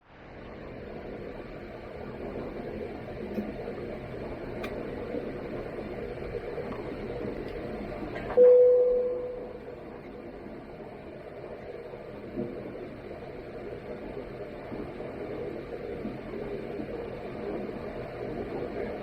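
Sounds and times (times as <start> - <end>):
airliner cabin noise: 0.1 - 19.0
cabin chime tone: 8.4 - 9.6.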